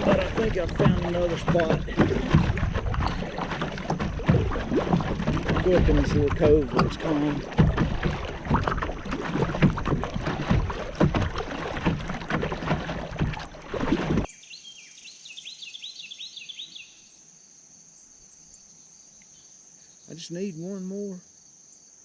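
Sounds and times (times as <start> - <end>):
water splashing around kayak: 0.0 - 14.3
insects trilling: 14.3 - 22.0.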